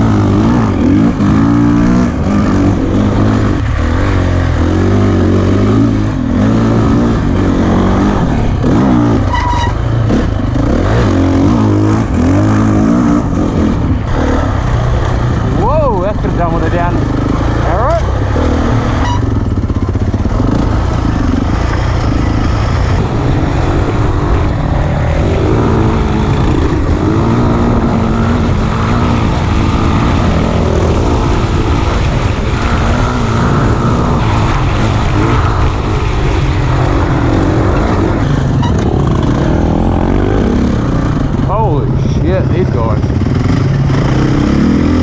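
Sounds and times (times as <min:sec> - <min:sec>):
dirt bike engine running hard: 0:00.0 - 0:45.0.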